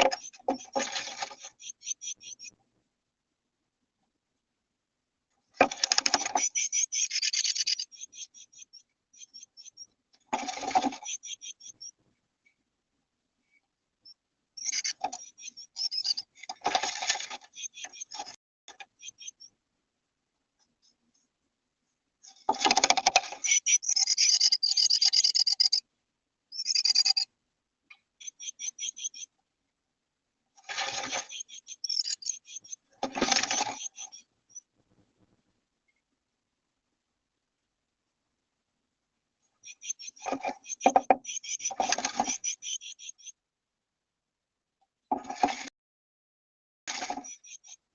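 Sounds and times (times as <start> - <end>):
songbird chattering calls: 23.4 - 25.8, 26.5 - 27.3, 28.2 - 29.3
scratching and rustling in nest: 30.6 - 34.2.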